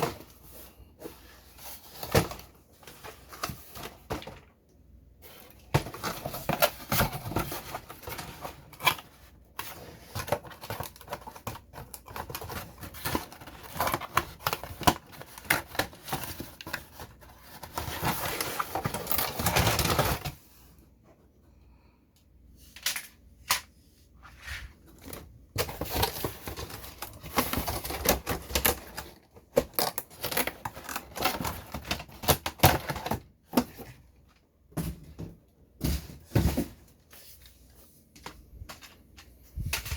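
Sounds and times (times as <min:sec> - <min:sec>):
packaging rustling: 0:05.2 - 0:20.4, 0:24.5 - 0:33.9.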